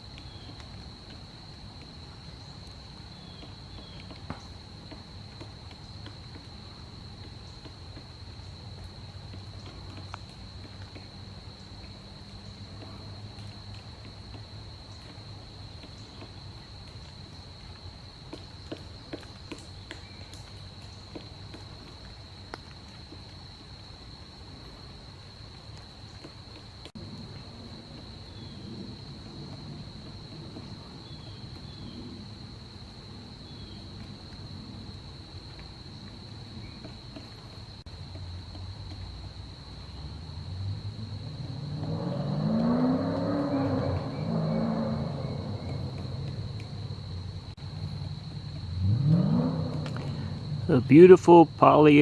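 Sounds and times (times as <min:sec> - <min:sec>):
light ticks: 0:07.2 - 0:15.2.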